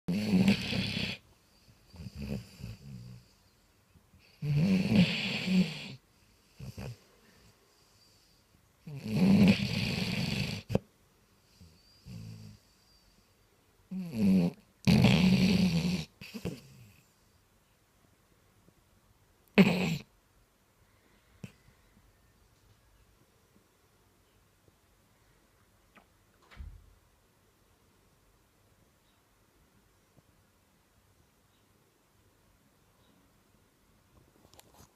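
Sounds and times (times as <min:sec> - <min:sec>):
dog snoring: 0:00.1 - 0:01.3, 0:01.9 - 0:03.4, 0:04.2 - 0:07.0, 0:07.8 - 0:10.8, 0:11.5 - 0:12.8, 0:13.9 - 0:17.1, 0:19.6 - 0:20.1.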